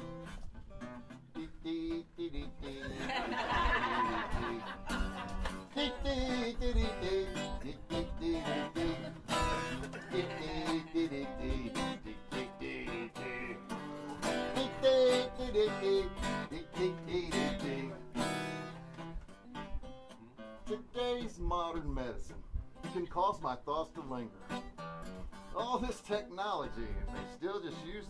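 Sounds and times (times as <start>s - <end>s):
acoustic guitar strummed and picked: 0.0s - 28.0s.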